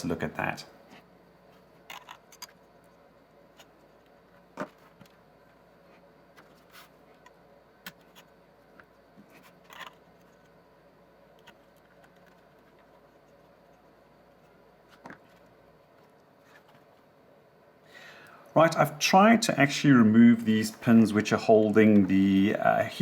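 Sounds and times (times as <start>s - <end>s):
small plastic clicks and scrapes: 1.9s - 2.6s.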